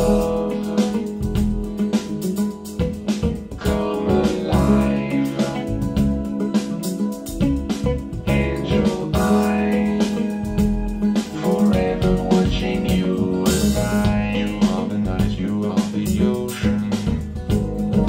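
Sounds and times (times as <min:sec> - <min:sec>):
music with guitar and bass: 0:00.0 - 0:18.0.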